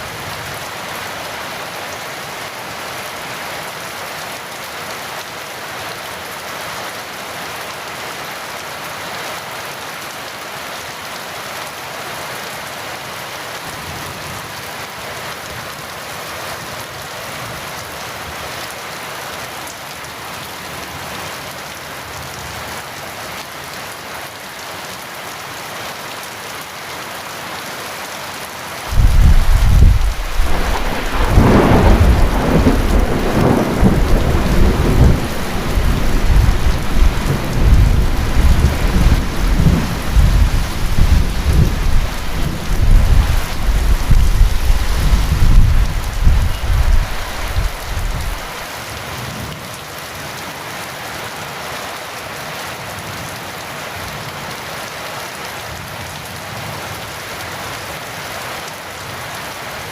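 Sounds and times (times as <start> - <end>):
heavy rain falling: 0.0 - 59.9
thunder clap and rumbles: 28.9 - 48.6.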